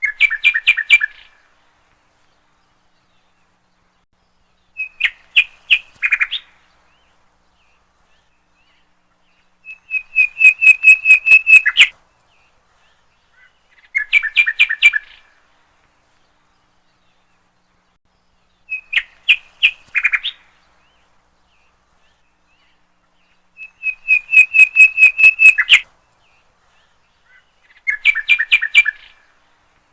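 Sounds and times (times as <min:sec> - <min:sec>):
bird chirping in rapid bursts: 0:09.6 - 0:11.9, 0:13.7 - 0:15.2, 0:18.6 - 0:20.4, 0:23.6 - 0:25.8, 0:27.6 - 0:29.2.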